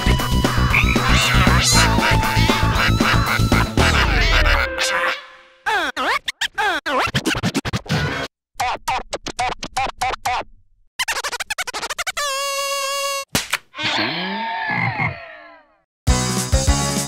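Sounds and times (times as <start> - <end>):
fast choppy cartoon music: 0.0 - 5.4
record scratch sweeps: 0.8 - 2.0.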